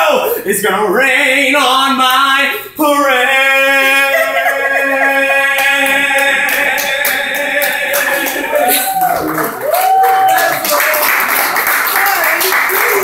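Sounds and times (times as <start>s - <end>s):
man singing unaccompanied: 0.0s - 8.6s
people clapping: 5.6s - 13.0s.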